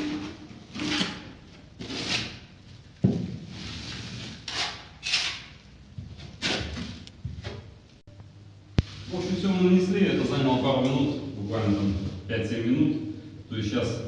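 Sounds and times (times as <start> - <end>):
spatula scraping adhesive on drywall: 1.8 - 2.5, 3.5 - 5.5.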